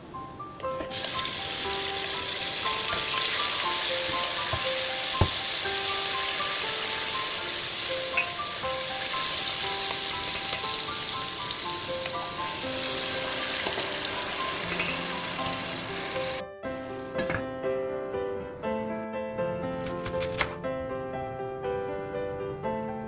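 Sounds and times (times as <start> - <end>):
background music with simple melody: 0.0 - 23.0
tomatoes sizzling in hot oil: 0.9 - 16.4.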